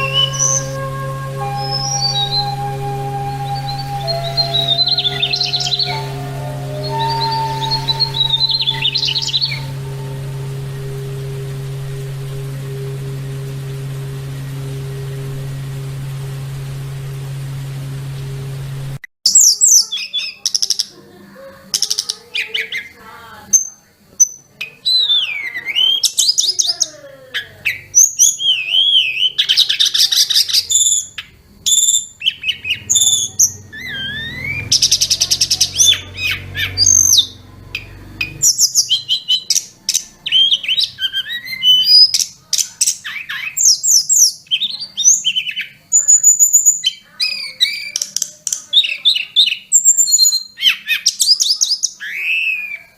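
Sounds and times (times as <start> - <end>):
songbird singing whistles and trills: 0.0 - 11.4, 21.8 - 52.9
steady hiss: 0.0 - 19.1.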